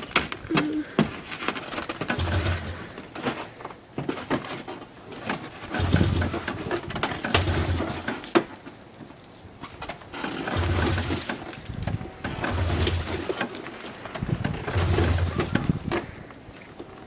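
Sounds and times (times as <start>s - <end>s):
rattling and knocks: 0.0s - 8.8s, 9.6s - 16.2s
snowmobile engine cranking: 0.0s - 8.9s, 9.6s - 17.0s.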